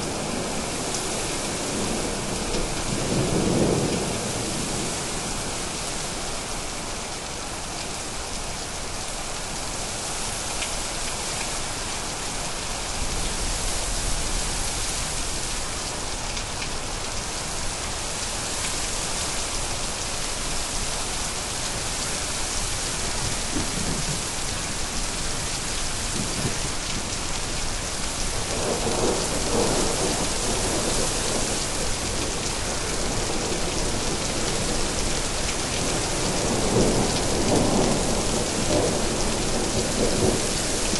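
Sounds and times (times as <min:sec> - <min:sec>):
rain hissing: 0:00.0 - 0:40.9.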